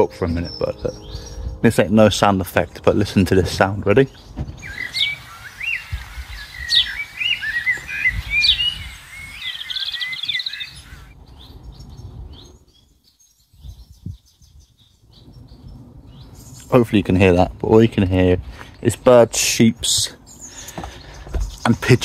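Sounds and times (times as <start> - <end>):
songbirds singing: 0.0 - 22.0
low thuds: 3.5 - 4.8.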